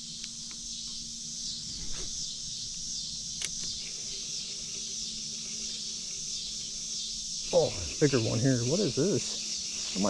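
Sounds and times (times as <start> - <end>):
high-pitched insect chorus: 0.0 - 10.0
sharp click: 3.4 - 3.8.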